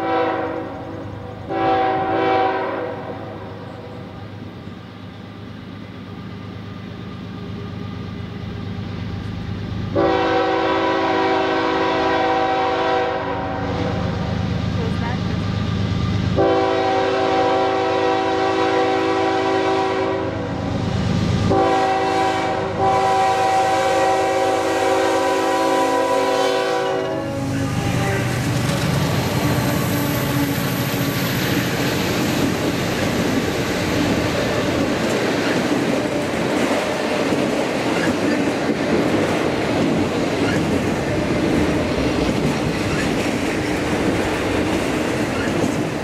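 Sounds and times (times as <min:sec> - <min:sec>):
locomotive horn blasts: 0:00.0 - 0:03.4, 0:09.9 - 0:14.0, 0:16.4 - 0:20.6, 0:21.5 - 0:28.4
locomotive passing: 0:00.0 - 0:46.0
freight cars rumbling past: 0:26.8 - 0:46.0
clickety-clack of wheels: 0:28.0 - 0:46.0.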